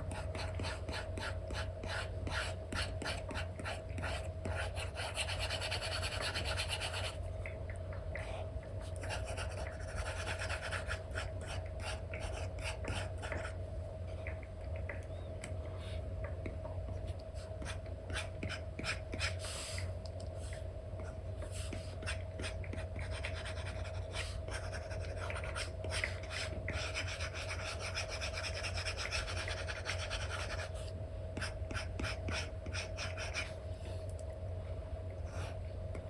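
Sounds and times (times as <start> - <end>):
steady low hum: 0.0 - 36.0
stylus scratching and tapping: 8.2 - 13.6, 21.0 - 30.7.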